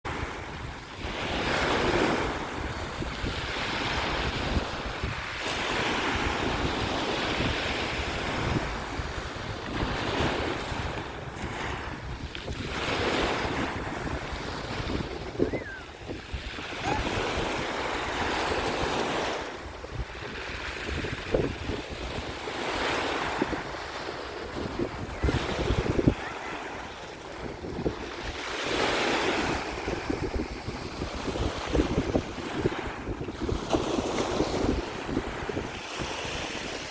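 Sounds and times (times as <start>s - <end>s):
sea waves breaking on beach: 0.1s - 36.9s
wind buffeting microphone: 0.1s - 36.9s.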